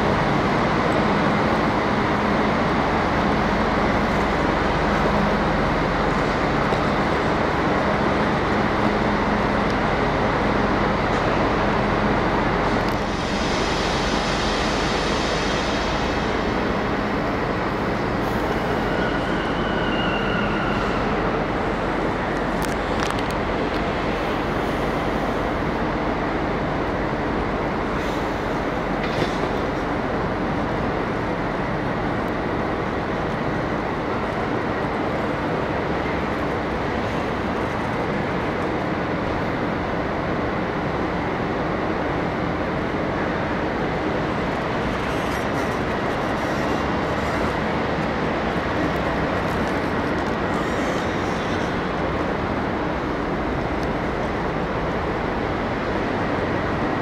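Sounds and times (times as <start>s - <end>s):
train rolling on rails: 0.0s - 57.0s
short high squeal: 18.3s - 21.2s.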